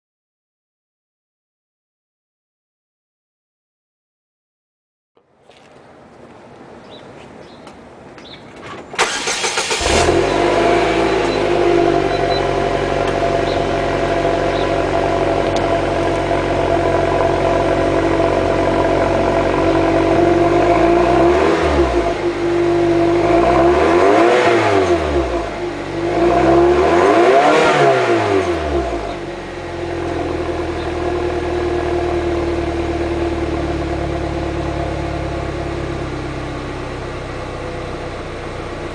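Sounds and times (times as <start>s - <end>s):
car engine idling and revving: 8.9s - 38.9s
starter motor cranking: 9.0s - 10.3s.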